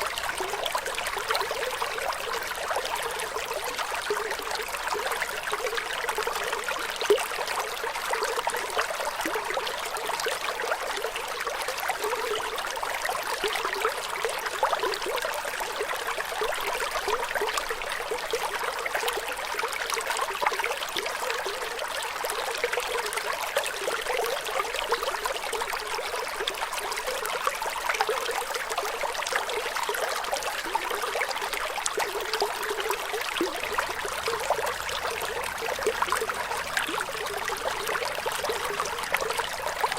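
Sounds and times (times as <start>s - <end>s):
water trickling and bubbling: 0.0s - 39.9s.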